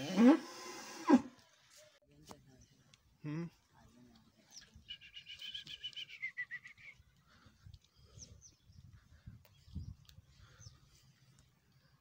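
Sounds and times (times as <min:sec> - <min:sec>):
short high bird chirps: 0:04.8 - 0:07.0.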